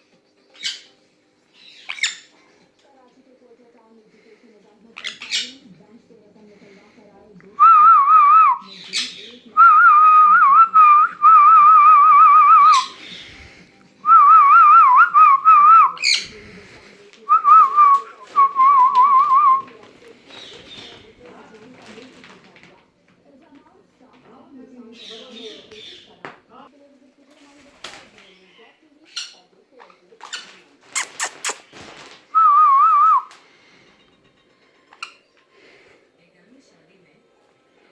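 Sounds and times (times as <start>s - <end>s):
parrot harsh calls: 12.2s - 13.2s, 15.8s - 16.4s.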